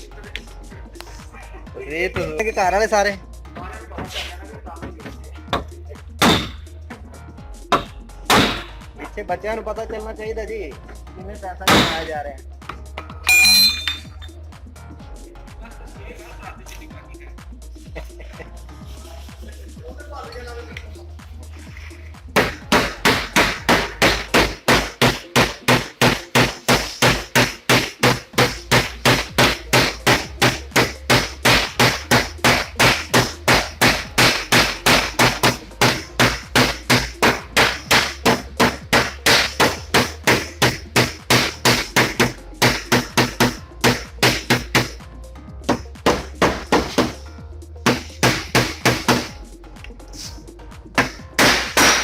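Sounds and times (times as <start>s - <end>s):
hammer striking car body metal: 5.6s - 6.6s, 7.7s - 8.8s, 11.6s - 12.2s, 22.4s - 45.0s, 45.7s - 47.2s, 47.9s - 49.4s, 51.0s - 52.0s.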